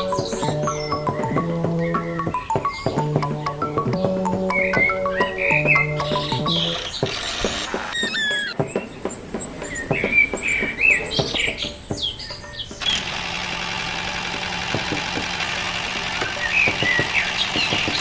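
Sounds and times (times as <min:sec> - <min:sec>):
short squeaky chirps: 0:03.8 - 0:13.0
small motor humming: 0:12.8 - 0:18.0.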